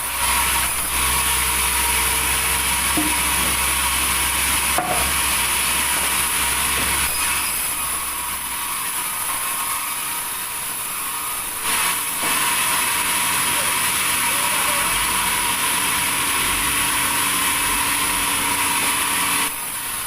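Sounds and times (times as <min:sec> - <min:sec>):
deep machine hum: 0:00.0 - 0:07.3
saw cutting through wood: 0:00.0 - 0:20.0.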